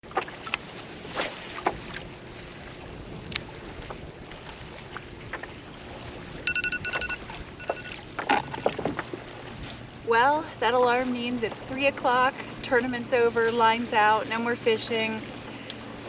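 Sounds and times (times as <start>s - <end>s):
wind and water noise: 0.0s - 16.0s
electronic alarm beeping: 6.5s - 8.0s.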